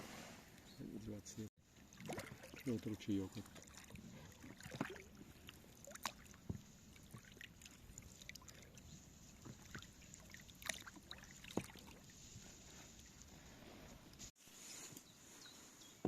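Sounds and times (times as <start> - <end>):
quiet water around boat: 0.0 - 16.0
light knocks and splashes: 1.7 - 14.3.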